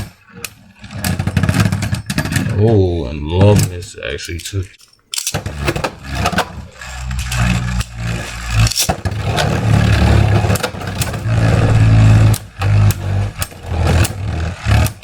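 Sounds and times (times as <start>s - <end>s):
spinning tops whirring: 5.2s - 15.0s.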